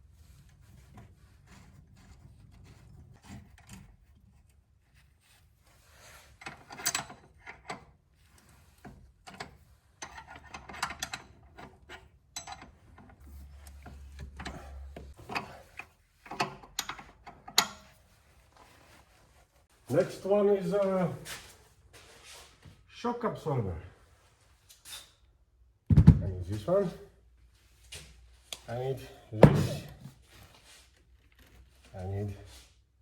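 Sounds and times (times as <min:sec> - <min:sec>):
metal tools clicking and clinking: 0:09.3 - 0:12.8.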